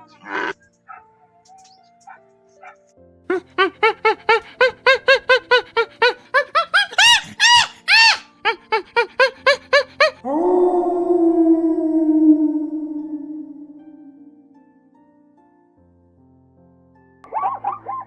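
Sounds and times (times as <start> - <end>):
low musical note ringing: 10.3 - 15.0
small dog yapping: 17.3 - 18.0.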